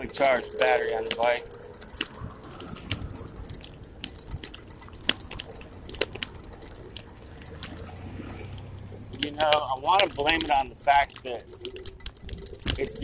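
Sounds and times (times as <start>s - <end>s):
bike clicks and rattles: 0.0s - 13.0s.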